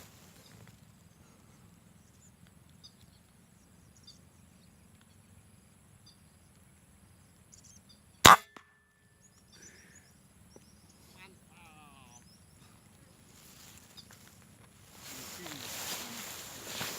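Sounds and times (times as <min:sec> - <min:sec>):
small birds chirping: 0:00.0 - 0:08.2, 0:09.2 - 0:16.9
air gun shot: 0:08.3 - 0:08.6.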